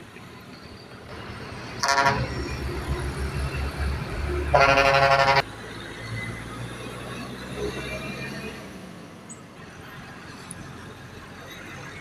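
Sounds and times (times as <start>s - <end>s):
truck engine rumble: 0.0s - 12.0s
truck horn: 1.8s - 2.4s, 4.4s - 5.5s.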